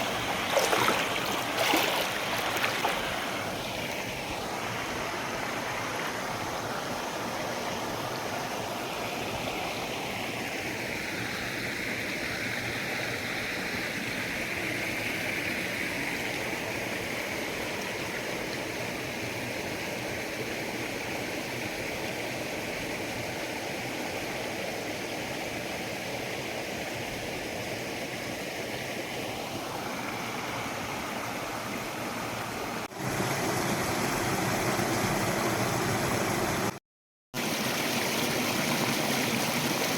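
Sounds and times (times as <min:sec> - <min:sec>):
loud water rush: 0:00.0 - 0:13.3, 0:26.2 - 0:36.8, 0:37.4 - 0:39.9
river stream running: 0:00.0 - 0:36.8, 0:37.4 - 0:39.9.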